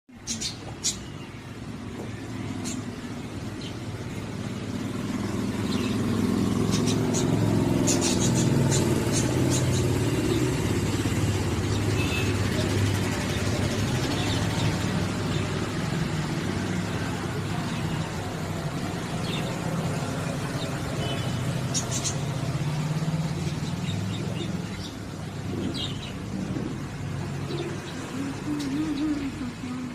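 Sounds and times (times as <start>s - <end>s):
vehicle engine hum: 0.1s - 29.9s
budgerigars chirping: 5.7s - 10.6s.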